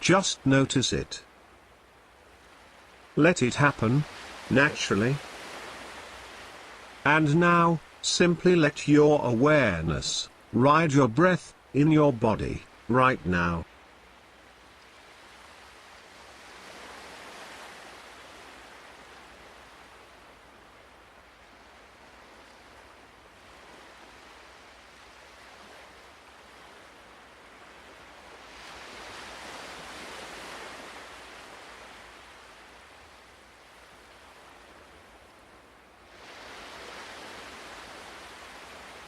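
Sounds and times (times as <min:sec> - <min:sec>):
ocean waves washing ashore: 0:00.0 - 0:39.0.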